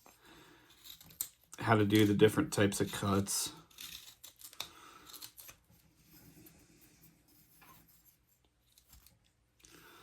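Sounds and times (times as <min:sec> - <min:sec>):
knife scraping wood: 0:00.0 - 0:06.4.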